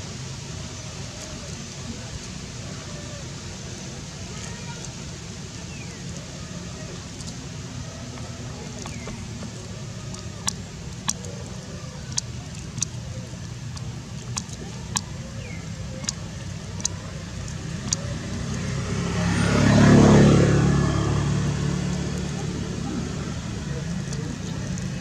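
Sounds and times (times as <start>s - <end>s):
low engine hum: 0.0s - 25.0s
motor vehicle passing: 2.6s - 25.0s
sharp clicks: 8.1s - 18.9s.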